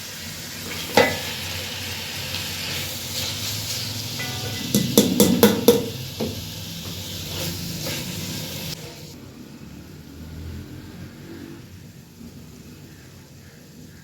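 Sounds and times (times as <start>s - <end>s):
minced meat sizzling in a pan: 0.0s - 14.0s
utensil knocking against pan: 4.2s - 7.0s.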